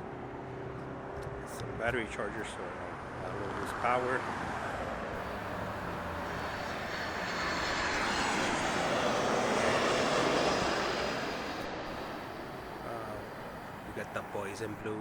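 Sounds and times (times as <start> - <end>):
jet airliner engines passing: 0.0 - 15.0.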